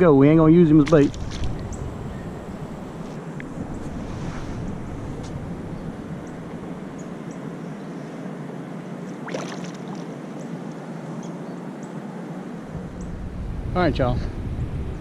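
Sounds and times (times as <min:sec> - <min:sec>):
river water around kayak: 0:08.8 - 0:11.5.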